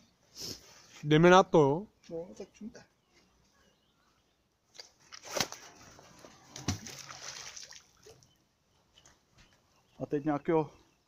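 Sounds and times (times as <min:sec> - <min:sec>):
water sloshing: 0:04.8 - 0:08.4
magnet splashing into water: 0:06.5 - 0:08.2.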